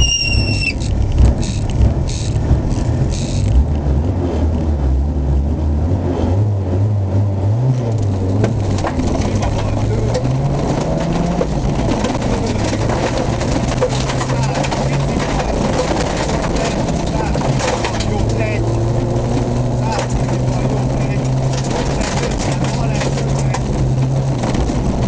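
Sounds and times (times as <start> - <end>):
short electronic beep: 0.0 - 0.8
vehicle engine revving: 0.0 - 25.0.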